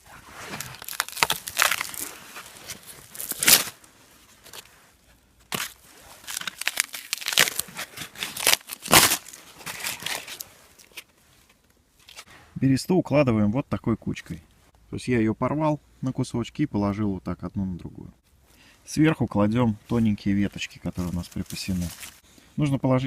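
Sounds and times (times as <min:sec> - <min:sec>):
bark ripping and crackling: 0:00.3 - 0:03.8, 0:05.5 - 0:10.4.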